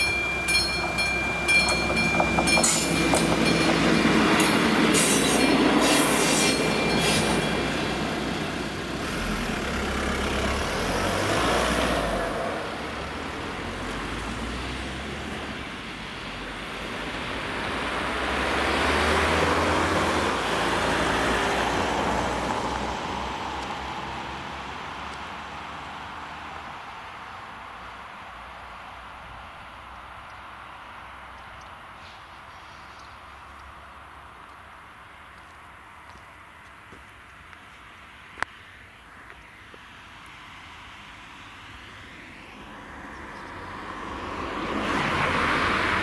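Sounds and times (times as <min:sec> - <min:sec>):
high wheel squeal: 0:00.0 - 0:08.3
train wheels clicking over rail joints: 0:00.0 - 0:08.5
cars driving over crossing: 0:00.0 - 0:28.8, 0:39.7 - 0:46.0.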